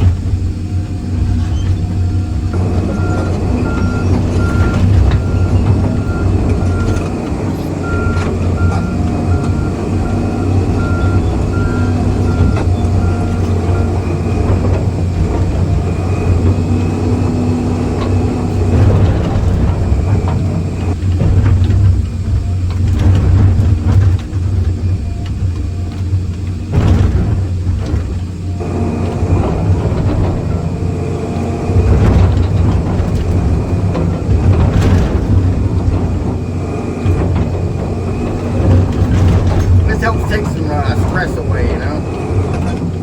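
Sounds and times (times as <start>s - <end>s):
excavator diesel engine: 0.0s - 43.0s
warning beeps: 2.7s - 14.1s.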